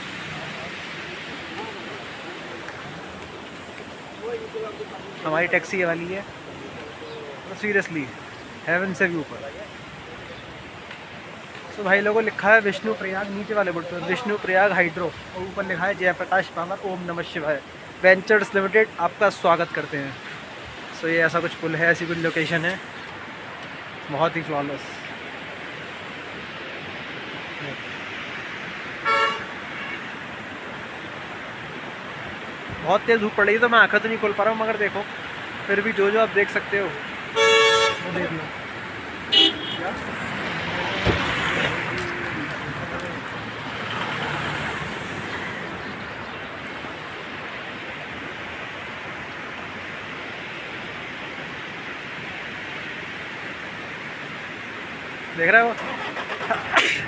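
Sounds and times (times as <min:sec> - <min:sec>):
river water rushing: 0:00.0 - 0:57.0
vehicle horn toot: 0:29.0 - 0:30.2, 0:37.4 - 0:38.1, 0:39.3 - 0:39.9.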